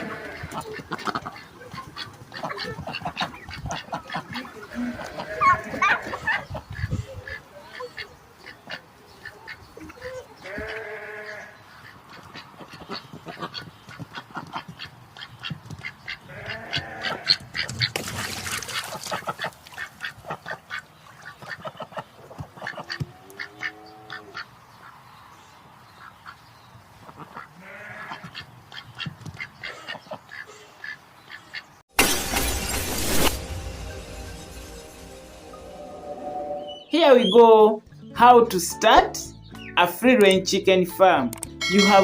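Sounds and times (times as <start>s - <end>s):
drawn-out bleating: 0.0s - 0.8s, 4.6s - 6.3s, 10.4s - 11.6s, 16.3s - 17.4s, 27.6s - 28.4s
rapid quacking calls: 0.0s - 17.9s.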